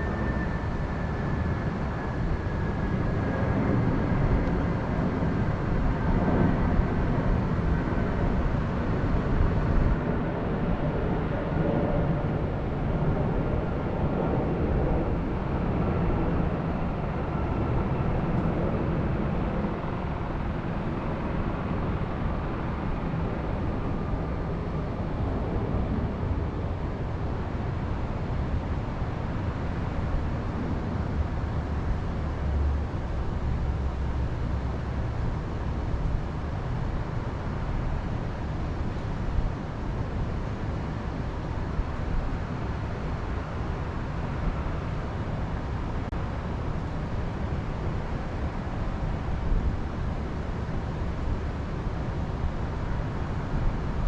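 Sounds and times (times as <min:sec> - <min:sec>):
low outdoor rumble: 0:00.0 - 0:54.0.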